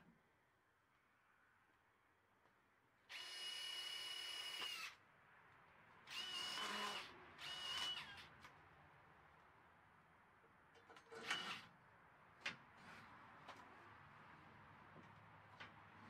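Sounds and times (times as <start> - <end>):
power drill whining: 3.1 - 5.0, 6.1 - 8.3, 11.1 - 11.7.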